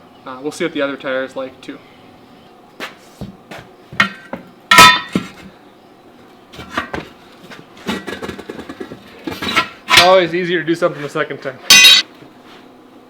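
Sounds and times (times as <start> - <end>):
metal knocks on wheel rim: 4.0 - 5.4
ringing metallic strike: 11.7 - 12.0.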